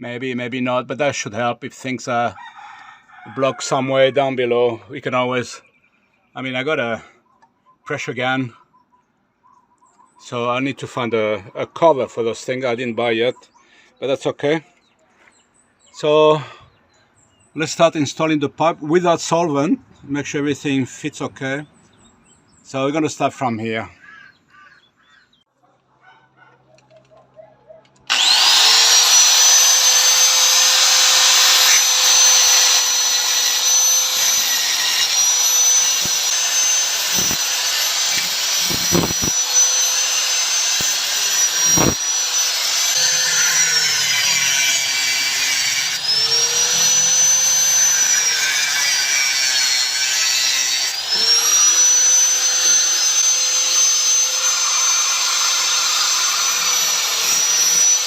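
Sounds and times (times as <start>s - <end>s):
electric power tool whining: 28.0s - 58.0s.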